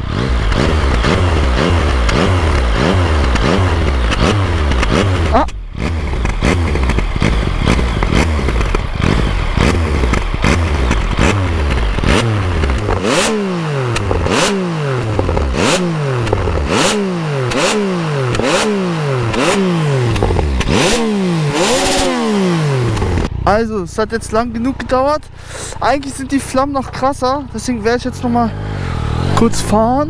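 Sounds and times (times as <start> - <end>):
exhaust pops and crackling: 0.0 - 23.4
motorcycle engine revving: 0.0 - 30.0.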